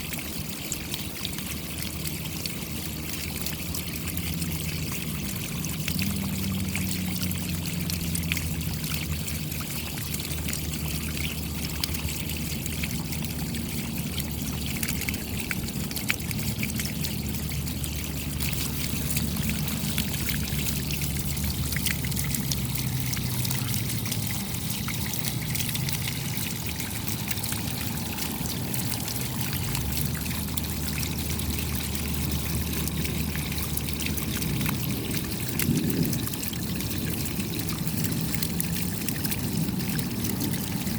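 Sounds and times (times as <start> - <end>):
trickling water: 0.0 - 40.9
steady rain pattering: 1.6 - 40.9.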